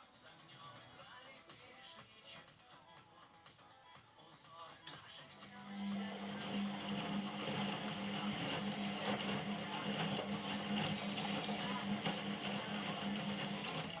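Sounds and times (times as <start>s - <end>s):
washing machine humming: 5.4s - 14.0s.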